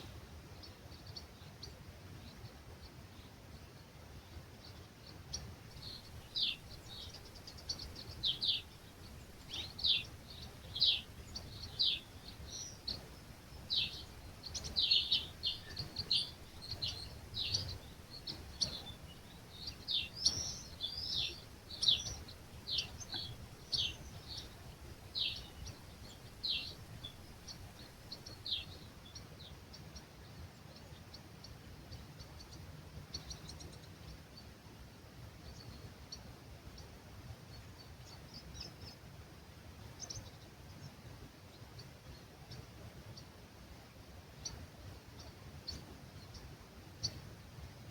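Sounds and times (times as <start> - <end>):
faint breeze: 0.0 - 47.9
birds chirping: 4.6 - 34.6.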